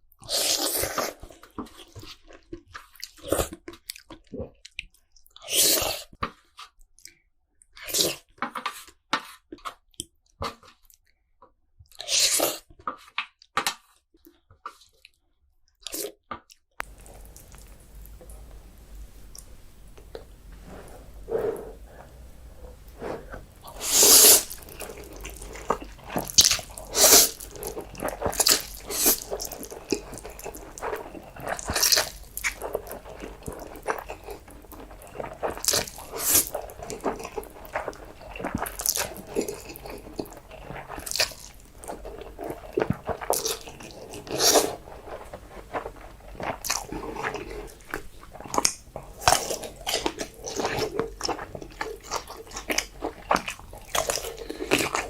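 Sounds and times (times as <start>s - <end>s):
chewing: 16.8s - 55.0s
wet slurping of noodles: 20.2s - 55.0s.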